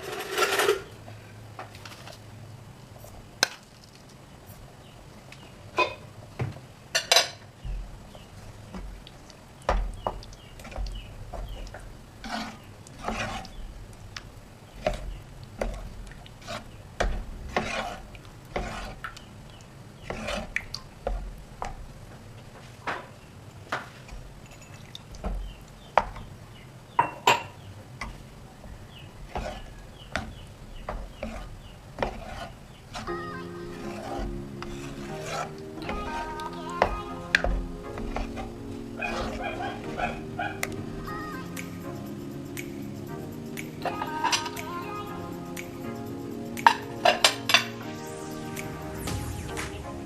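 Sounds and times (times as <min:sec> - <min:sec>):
metal spoon scraping a pan: 0:00.0 - 0:00.9, 0:12.2 - 0:13.7, 0:17.5 - 0:19.0, 0:31.2 - 0:36.9, 0:38.0 - 0:40.2.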